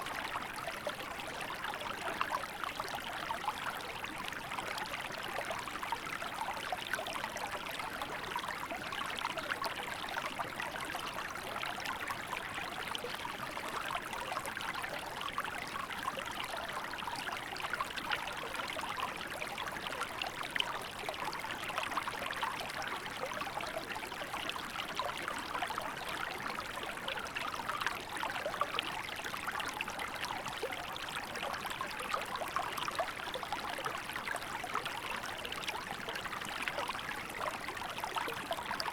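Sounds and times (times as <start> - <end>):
small river flowing: 0.0 - 38.9.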